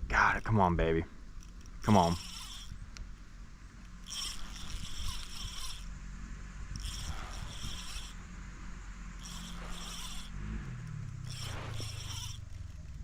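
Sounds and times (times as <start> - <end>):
fishing reel clicking: 1.3 - 3.2, 3.8 - 6.0, 6.7 - 8.3, 9.2 - 13.0.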